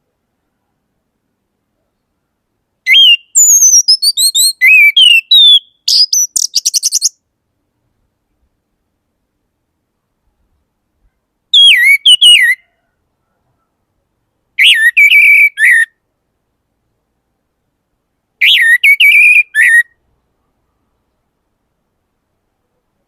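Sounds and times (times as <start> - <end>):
bird singing whistled notes: 2.9 - 7.2, 11.5 - 12.9, 14.6 - 16.0, 18.4 - 20.0.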